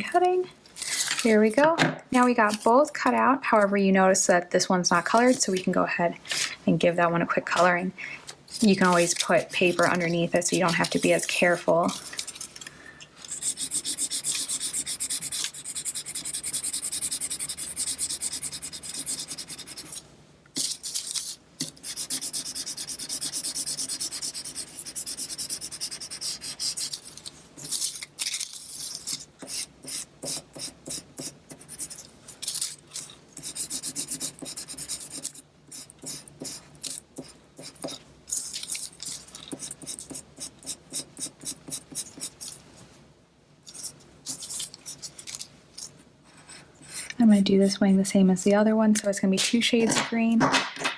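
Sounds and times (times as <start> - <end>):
colouring tool scribbling on paper: 13.2 - 20.0, 21.6 - 27.9, 28.8 - 42.5.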